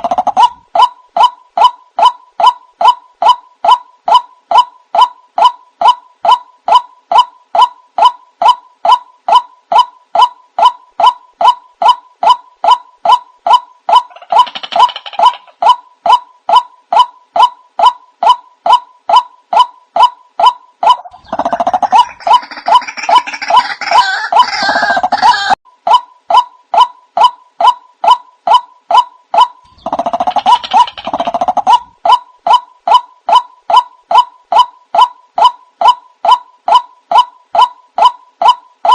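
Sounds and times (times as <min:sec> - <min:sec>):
waterhen calling: 0:20.8 - 0:25.6.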